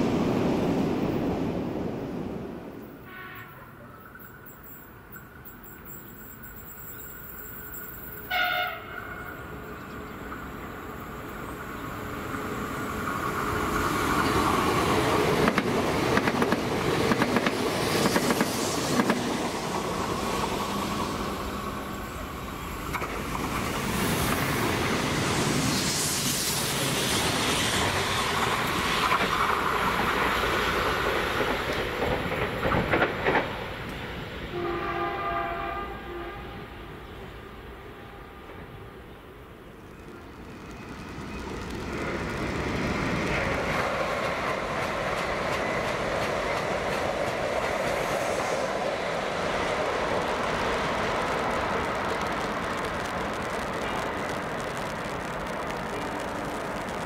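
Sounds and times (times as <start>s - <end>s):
train horn blast: 3.0s - 3.8s, 8.3s - 9.5s, 34.5s - 36.9s
train wheels rushing on rail: 4.1s - 57.0s.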